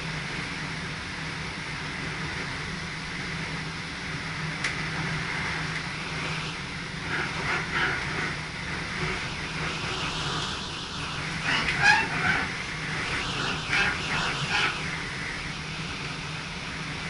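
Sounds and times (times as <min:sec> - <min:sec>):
train cab low hum: 0:00.0 - 0:17.0
high-pitched squeaks or rattles: 0:11.4 - 0:12.5.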